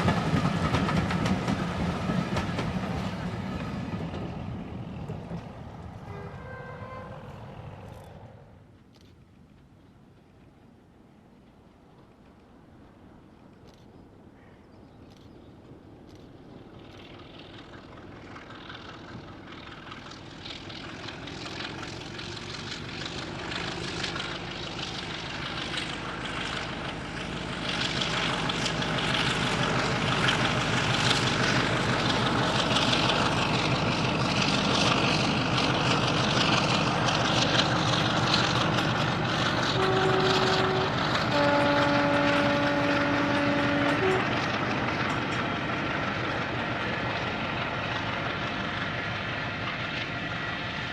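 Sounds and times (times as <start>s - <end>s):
diesel locomotive engine: 0.0s - 50.9s
two-tone train horn: 6.0s - 7.6s, 39.6s - 44.7s.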